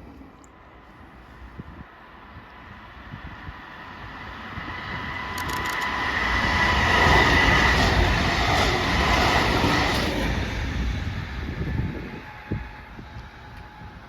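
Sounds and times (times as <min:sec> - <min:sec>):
train passing: 0:00.0 - 0:14.0
sharp clicks: 0:05.4 - 0:06.0.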